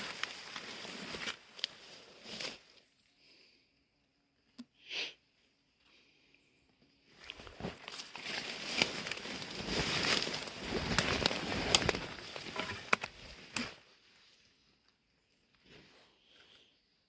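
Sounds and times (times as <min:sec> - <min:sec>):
rustling and crackling: 0:00.0 - 0:02.7, 0:07.1 - 0:13.7.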